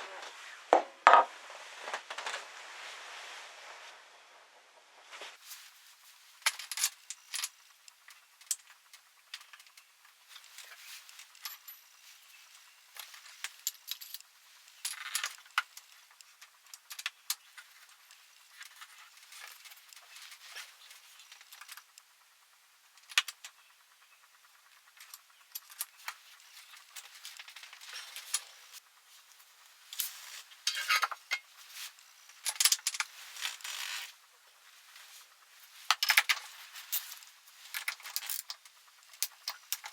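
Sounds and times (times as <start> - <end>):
metal tools clinking and rattling: 10.3 - 16.0, 25.0 - 28.8, 30.0 - 34.0, 35.9 - 39.9.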